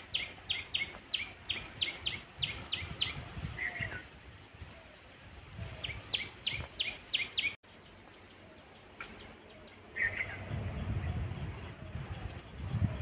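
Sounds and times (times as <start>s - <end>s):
birds calling: 0.0s - 13.0s
low rumbling noise: 9.2s - 13.0s.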